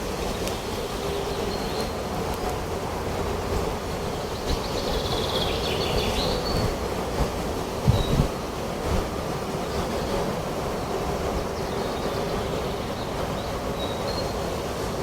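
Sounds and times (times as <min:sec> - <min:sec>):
wind through forest: 0:00.0 - 0:15.0
bird chirping: 0:04.2 - 0:06.7.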